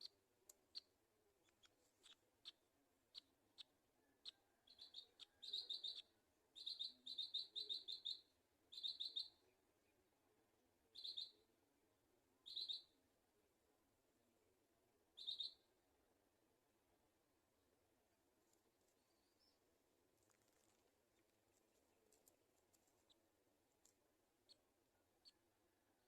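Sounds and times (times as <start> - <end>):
high-pitched bird calls: 1.6 - 9.4, 11.0 - 11.3, 12.5 - 12.9, 15.2 - 15.6.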